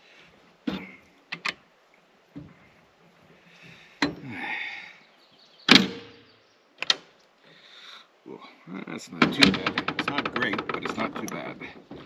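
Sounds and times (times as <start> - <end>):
chainsaw parts clunking: 5.7 - 6.1, 9.1 - 12.0.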